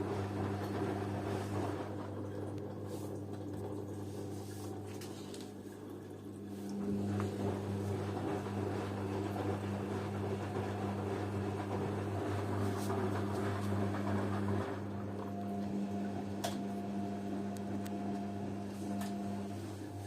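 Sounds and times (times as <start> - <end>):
washing machine running: 0.0 - 20.0.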